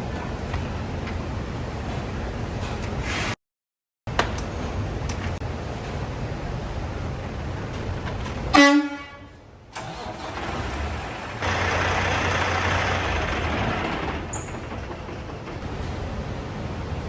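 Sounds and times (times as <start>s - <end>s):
steady low rumble: 4.7s - 8.6s
vehicle horn toot: 8.5s - 9.4s.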